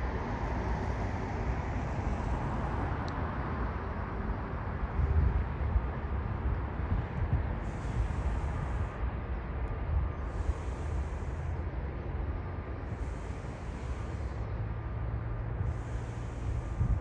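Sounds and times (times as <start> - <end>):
faint steady whine: 0.0 - 17.0
wind buffeting microphone: 4.5 - 17.0.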